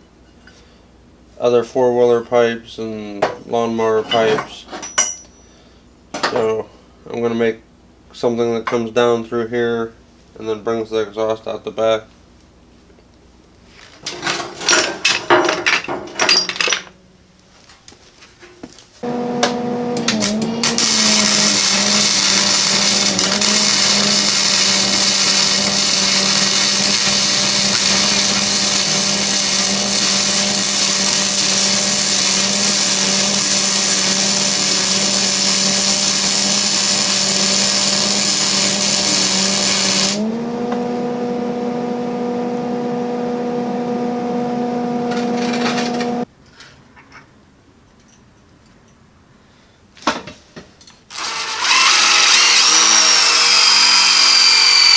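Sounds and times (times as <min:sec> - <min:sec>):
metal pieces clattering: 0:14.0 - 0:17.0
power tool grinding metal: 0:19.0 - 0:46.3, 0:51.1 - 0:54.9
power tool motor running: 0:19.0 - 0:46.3, 0:51.1 - 0:54.9.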